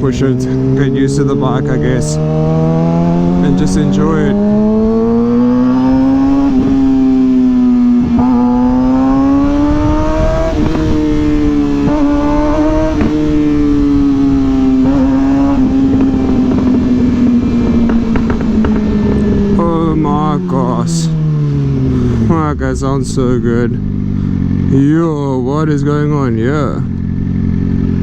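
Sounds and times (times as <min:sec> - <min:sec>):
motorcycle engine revving: 0:00.0 - 0:28.0
wind noise: 0:02.2 - 0:22.3.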